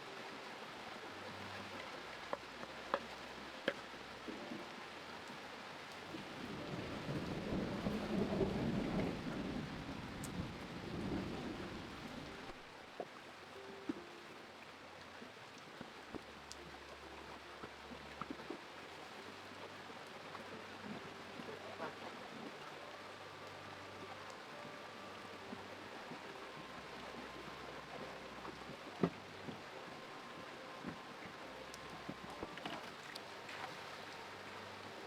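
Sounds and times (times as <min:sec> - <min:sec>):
light ticks: 0:10.2 - 0:10.4, 0:15.2 - 0:19.3, 0:23.4 - 0:24.8.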